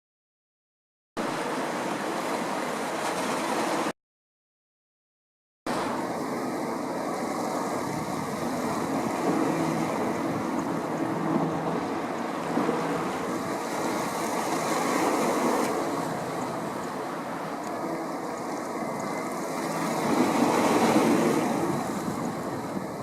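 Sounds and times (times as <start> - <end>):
waves washing: 1.2 - 3.9, 5.7 - 23.0
boat engine running: 5.7 - 23.0
wind on microphone: 5.7 - 23.0.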